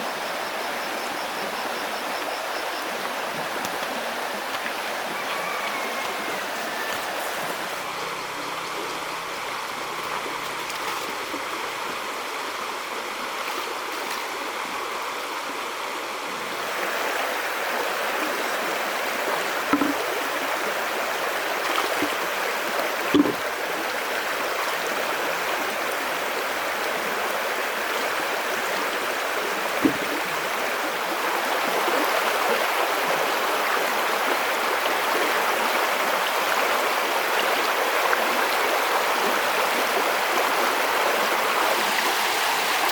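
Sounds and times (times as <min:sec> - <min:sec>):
river water rushing: 0:01.4 - 0:42.9
short knocks or splashes: 0:19.7 - 0:20.0, 0:23.1 - 0:23.5, 0:29.8 - 0:30.5.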